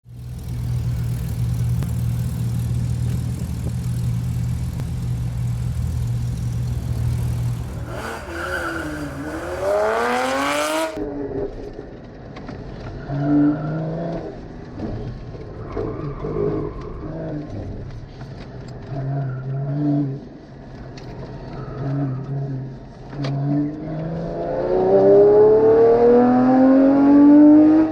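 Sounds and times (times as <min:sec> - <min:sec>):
sports car engine revving: 0:00.1 - 0:11.0, 0:23.6 - 0:27.9.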